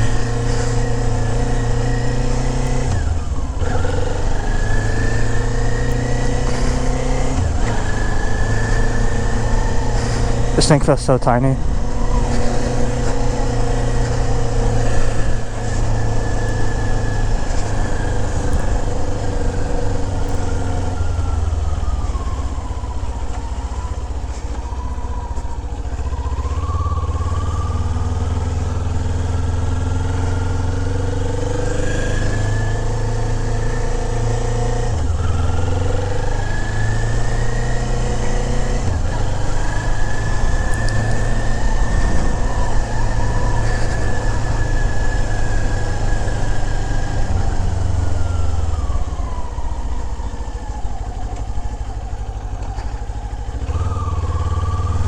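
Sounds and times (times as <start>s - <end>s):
motorcycle engine running: 0.0s - 55.0s
wind rumble: 38.9s - 54.2s.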